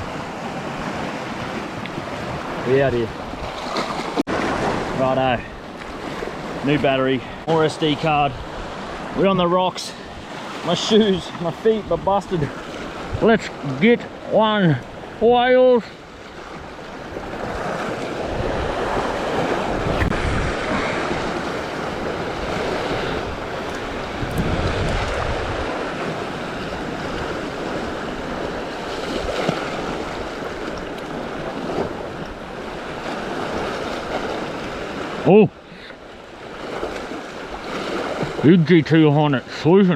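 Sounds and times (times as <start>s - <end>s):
sea waves washing over rocks: 0.0s - 39.9s
wind buffeting microphone: 16.3s - 34.9s.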